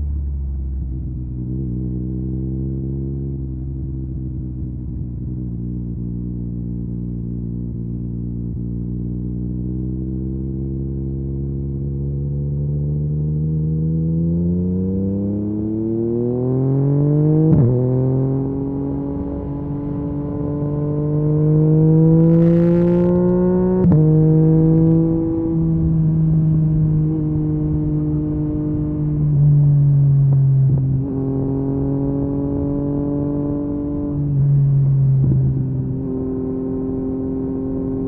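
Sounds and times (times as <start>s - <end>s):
motorcycle engine revving up: 12.7s - 29.2s.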